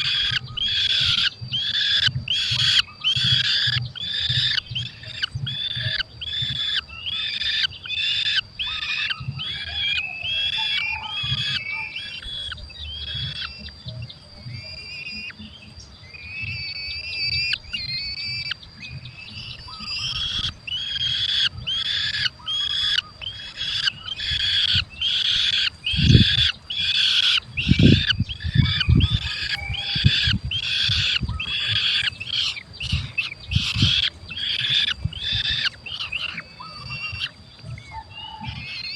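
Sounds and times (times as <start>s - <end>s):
falcon chicks calling: 0.0s - 38.9s.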